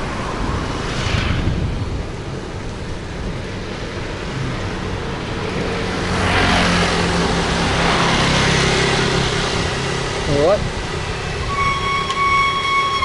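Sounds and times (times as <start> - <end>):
vehicle passing close: 3.6 - 13.0.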